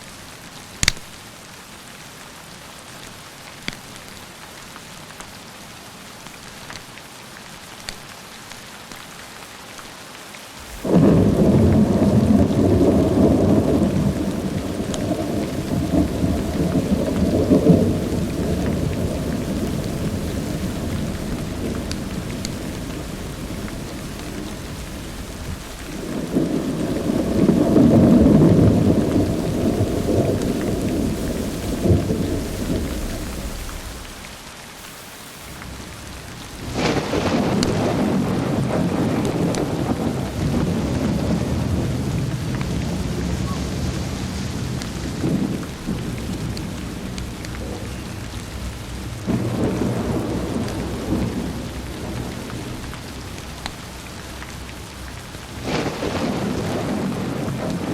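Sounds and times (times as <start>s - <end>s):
steady rain: 0.0s - 57.9s
thunder crack and rumble: 10.6s - 34.4s, 35.6s - 57.9s.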